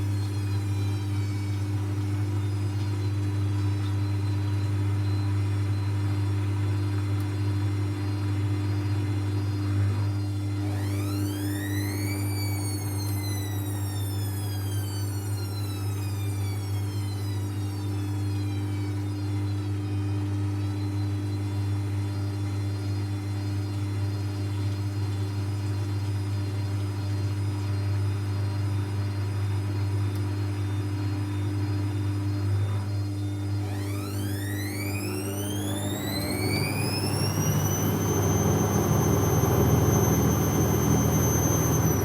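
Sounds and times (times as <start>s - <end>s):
washing machine motor whine: 0.0s - 42.0s
steady low hum: 29.7s - 42.0s.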